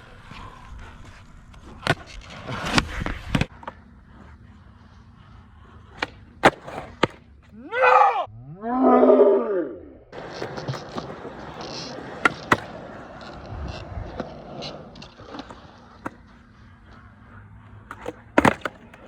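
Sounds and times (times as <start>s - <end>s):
skateboard wheels rolling: 0.0s - 8.1s, 10.1s - 19.0s
skateboard clacking on concrete: 5.7s - 7.3s, 10.2s - 19.0s
person shouting: 7.6s - 8.3s.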